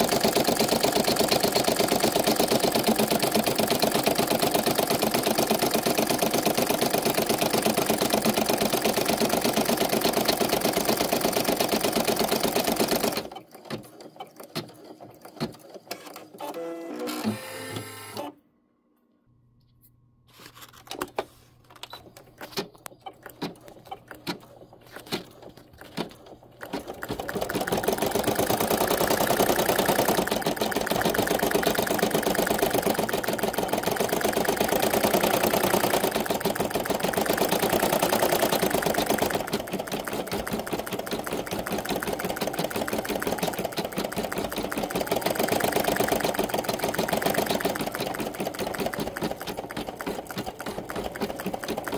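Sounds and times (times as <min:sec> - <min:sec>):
embroidery machine stitching: 0:00.0 - 0:18.4, 0:22.0 - 0:51.9
scattered clicks and knocks: 0:12.8 - 0:16.2, 0:20.6 - 0:51.9.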